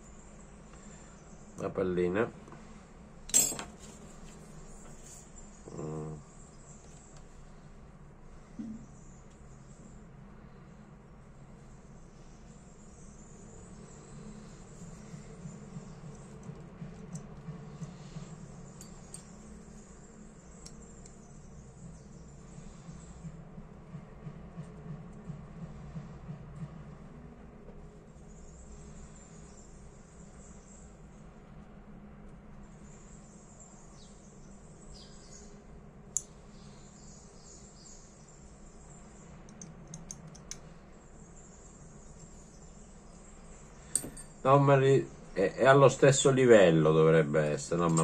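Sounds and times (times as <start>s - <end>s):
low background hum: 0.0s - 48.0s
small metal parts clicking: 39.4s - 40.7s, 43.8s - 44.4s.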